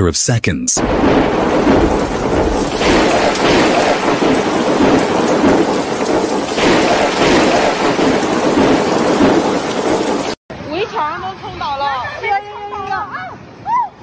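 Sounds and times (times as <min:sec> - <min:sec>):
deep rumble: 0:00.8 - 0:10.4
heavy rain: 0:00.8 - 0:10.4
wind: 0:00.8 - 0:14.0.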